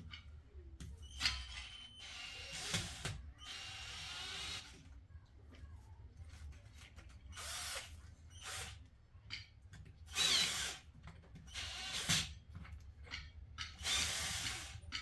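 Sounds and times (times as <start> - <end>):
power drill bursts: 1.6 - 4.7, 10.1 - 10.8, 11.5 - 12.3, 13.8 - 14.8.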